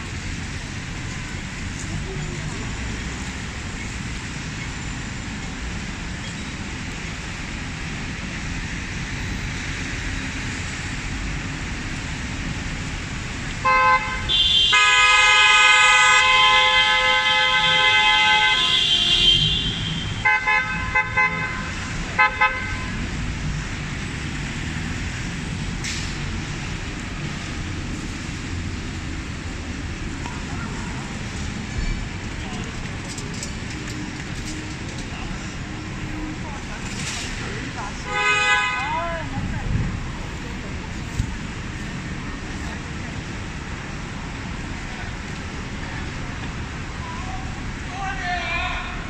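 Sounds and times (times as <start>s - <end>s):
street traffic: 0.0s - 49.0s
vehicle horn tooting: 13.6s - 23.0s, 38.0s - 39.1s
steady rain: 22.9s - 38.0s.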